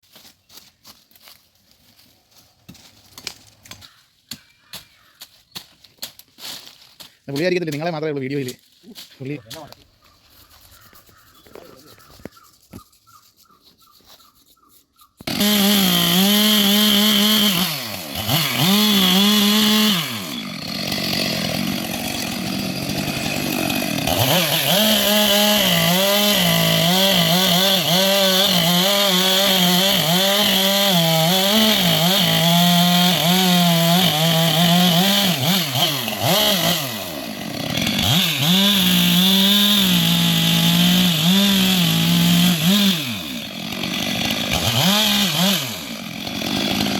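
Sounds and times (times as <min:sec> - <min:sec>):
chainsaw cutting wood: 0:15.2 - 0:46.9.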